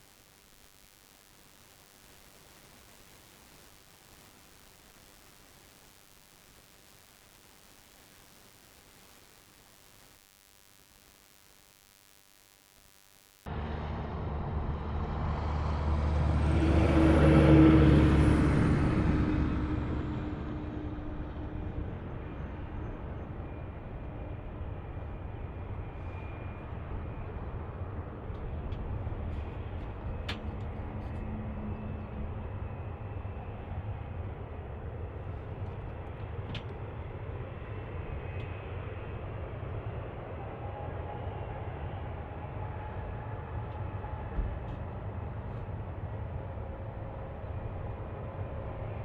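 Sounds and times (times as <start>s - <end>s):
vehicle passing: 13.5s - 21.2s
distant engine rumble: 13.5s - 23.5s.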